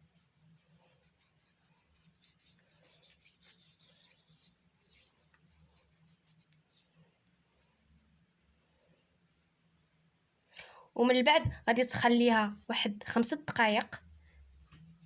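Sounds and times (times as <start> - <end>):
gritty paste rubbing on skin: 0.0 - 6.9, 14.6 - 15.0.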